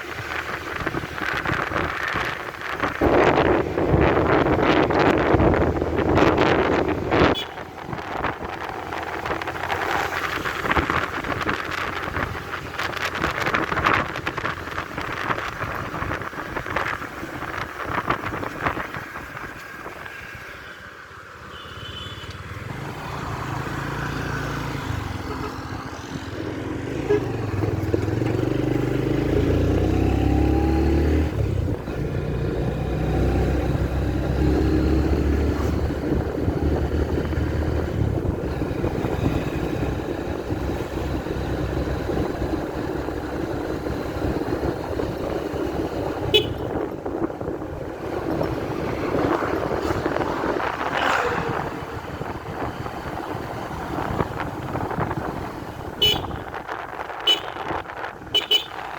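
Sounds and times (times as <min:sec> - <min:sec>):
wind buffeting microphone: 0:00.0 - 0:20.4, 0:22.5 - 0:58.9
motorcycle engine running: 0:31.2 - 0:58.9.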